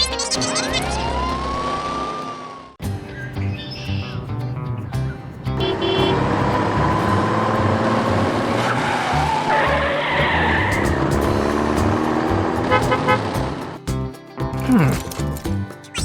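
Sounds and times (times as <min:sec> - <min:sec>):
tyres skidding: 0:03.4 - 0:14.0
engine running hard: 0:05.6 - 0:13.8
background music with low beat: 0:10.6 - 0:16.0.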